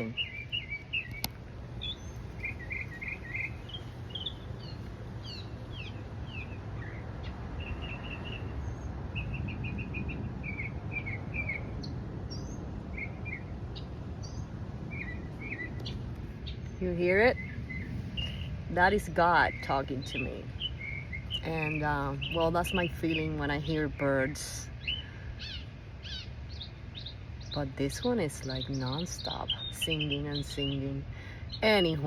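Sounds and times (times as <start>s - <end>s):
songbird chirping and whistling: 0.0s - 13.5s
low background rumble: 0.0s - 32.0s.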